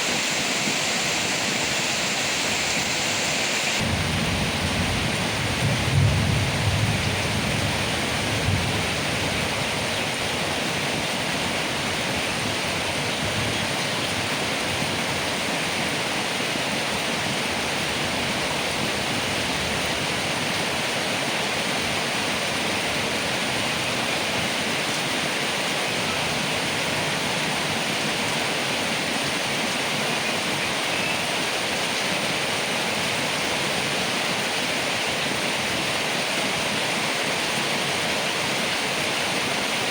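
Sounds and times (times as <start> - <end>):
heavy rain on leaves: 0.0 - 39.9
low thunder rumble: 3.8 - 9.6.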